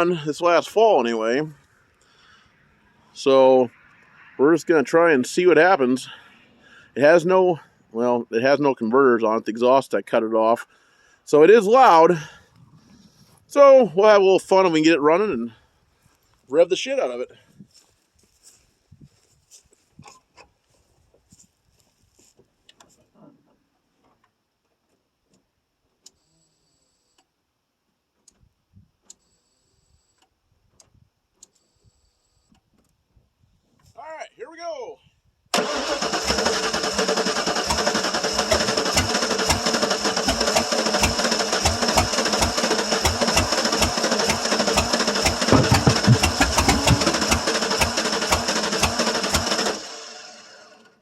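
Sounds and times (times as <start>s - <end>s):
starter motor cranking engine: 35.6s - 51.0s.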